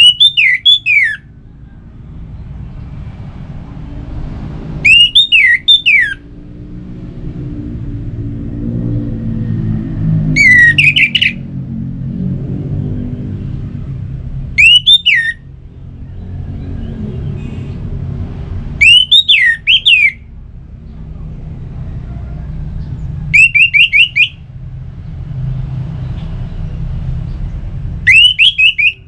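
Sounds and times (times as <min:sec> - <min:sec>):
thrush singing whistled phrases: 0:00.0 - 0:01.3, 0:04.7 - 0:06.3, 0:10.3 - 0:11.4, 0:14.6 - 0:15.5, 0:18.7 - 0:20.3, 0:23.3 - 0:24.5, 0:28.0 - 0:29.0
steady low rumble: 0:06.2 - 0:14.6.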